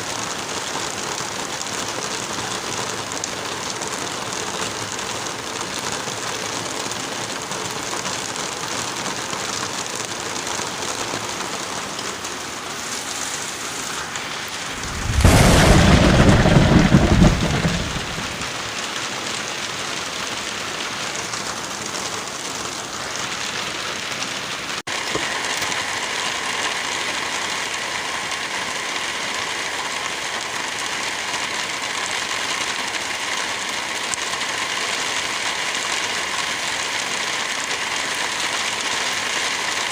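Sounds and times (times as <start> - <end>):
steady rain: 0.0 - 39.9
thunder rumbling: 14.0 - 18.8.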